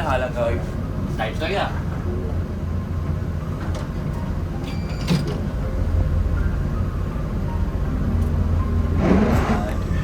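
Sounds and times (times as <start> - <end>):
vehicle engine humming: 5.3 - 10.0.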